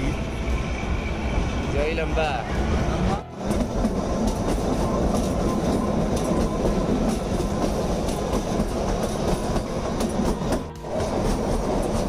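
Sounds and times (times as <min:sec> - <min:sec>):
train wheels clattering on rails: 0:00.0 - 0:12.0
carriages rattling: 0:03.5 - 0:12.0.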